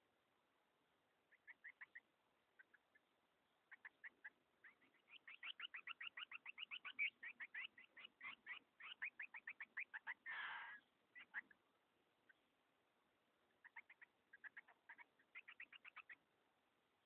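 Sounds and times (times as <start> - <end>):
bird chirping rapidly: 1.3 - 2.0, 3.7 - 11.6, 13.5 - 16.2
rasping bird call: 10.2 - 10.8.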